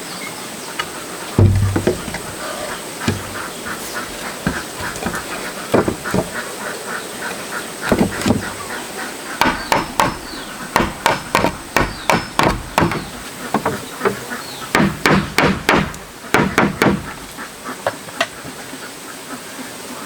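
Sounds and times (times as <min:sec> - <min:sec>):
hammer blows on wood: 0:01.4 - 0:06.4, 0:09.4 - 0:17.2.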